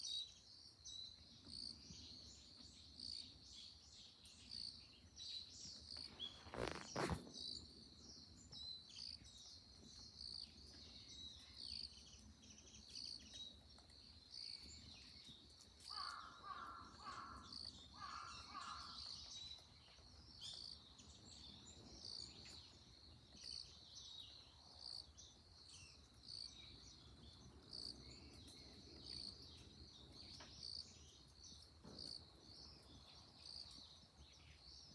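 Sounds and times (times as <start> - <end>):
insects and small birds chorus: 0.0 - 34.9
lower-pitched bird calls: 15.9 - 19.2.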